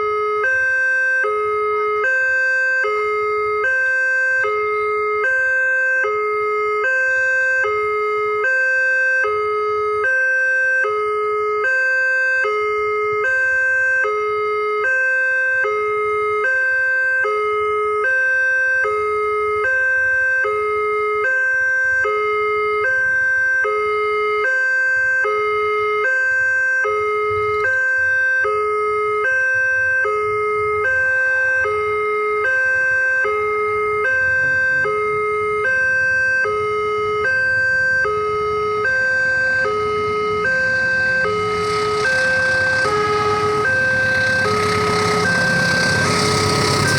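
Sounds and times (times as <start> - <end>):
level crossing two-tone alarm: 0.0 - 46.9
train rushing noise: 39.3 - 46.9.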